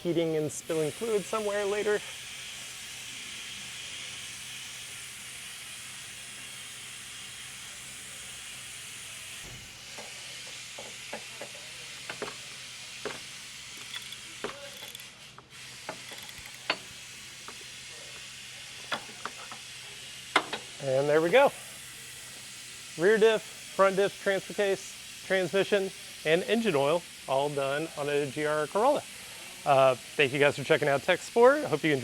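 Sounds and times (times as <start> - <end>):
shop background hiss: 0.0 - 32.0
tools clicking and knocking: 10.0 - 12.4, 13.0 - 16.9, 18.8 - 19.6, 20.3 - 20.7.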